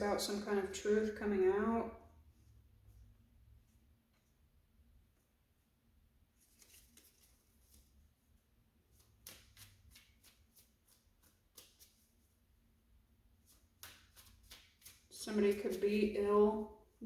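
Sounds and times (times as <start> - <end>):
cards being shuffled: 6.4 - 8.0, 8.9 - 12.2, 13.4 - 16.0.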